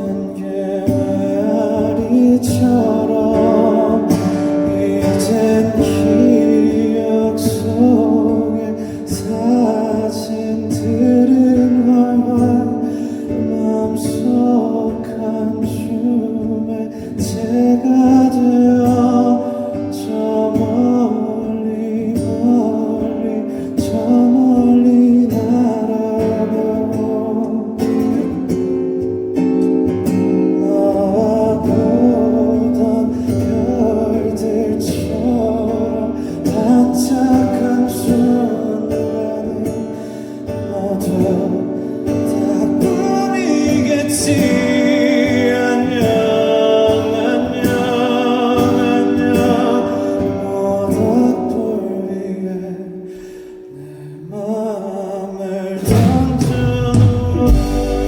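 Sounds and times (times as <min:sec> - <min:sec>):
guitar: 0:00.0 - 0:58.0
person singing: 0:30.6 - 0:53.0, 0:53.7 - 0:58.0
live pop ballad band music: 0:55.9 - 0:58.0.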